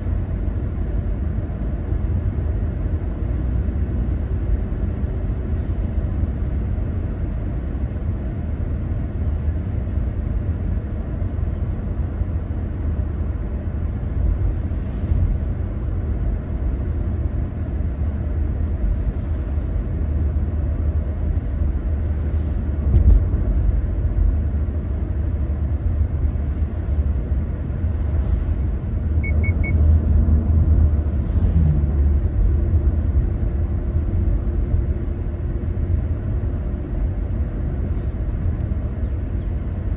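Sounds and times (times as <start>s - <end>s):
car driving rumble: 0.0s - 39.9s
short high beeps: 29.2s - 29.8s.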